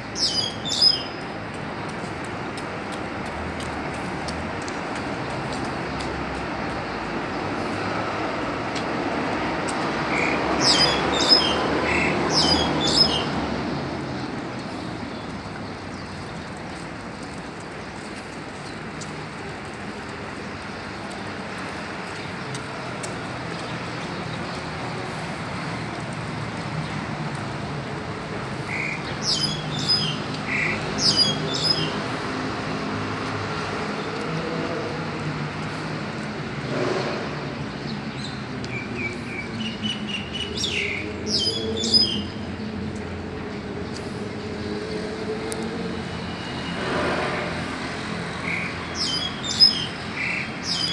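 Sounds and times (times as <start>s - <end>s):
high-pitched bird calls: 0.2s - 1.2s, 10.1s - 13.4s, 28.7s - 32.0s, 48.4s - 50.9s.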